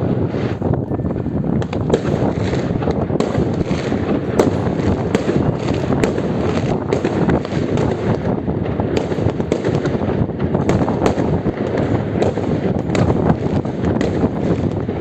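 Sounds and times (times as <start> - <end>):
distant fireworks bursts: 0.0 - 15.0
sharp firework bangs: 0.0 - 15.0.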